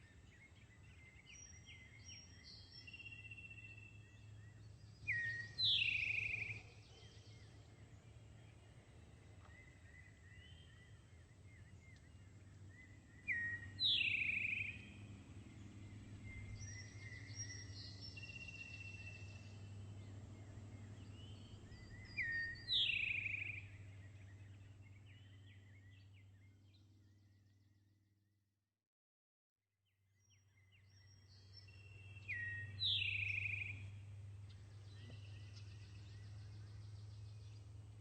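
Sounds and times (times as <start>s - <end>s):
small bird chirps: 0.0s - 7.7s, 9.4s - 15.1s, 20.8s - 27.3s, 30.2s - 38.0s
steady low hum: 0.0s - 27.7s, 30.9s - 38.0s.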